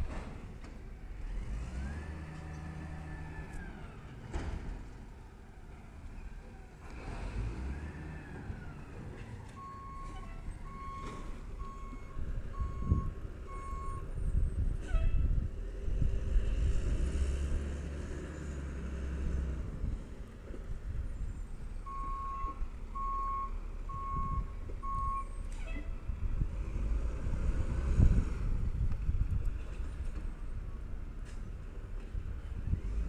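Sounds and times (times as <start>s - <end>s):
truck engine whining: 0.0s - 14.9s.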